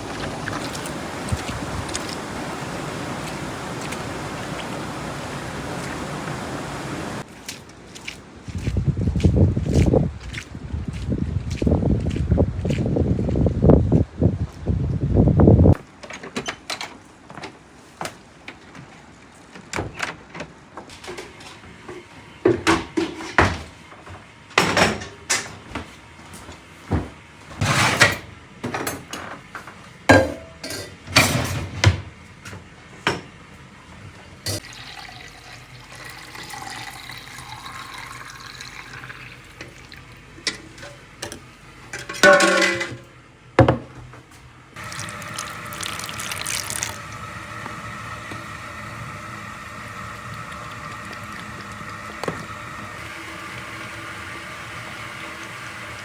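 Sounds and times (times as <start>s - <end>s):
running water: 0.0s - 8.7s, 34.5s - 40.8s, 44.8s - 56.0s
dishes and utensils clinking: 30.1s - 31.7s, 42.0s - 43.0s
dishes clattering: 30.1s - 31.7s, 42.0s - 43.0s.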